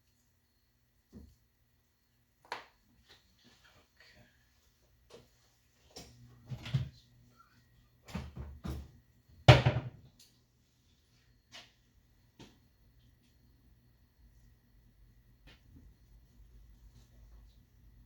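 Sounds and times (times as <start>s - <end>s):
kitchen items knocking: 9.5s - 10.0s.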